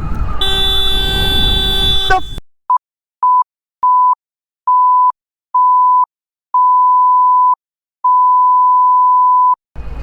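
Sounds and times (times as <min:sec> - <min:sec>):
censor beep tone: 0:01.6 - 0:02.4, 0:03.2 - 0:09.6.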